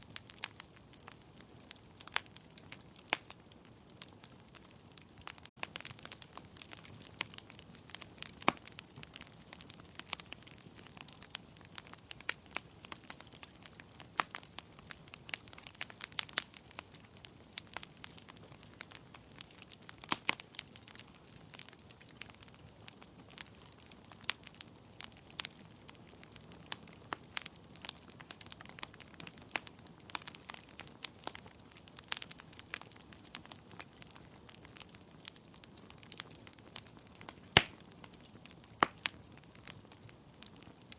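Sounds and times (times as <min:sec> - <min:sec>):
wood fire crackling: 0:00.0 - 0:40.9
sharp pops and snaps: 0:34.0 - 0:39.2.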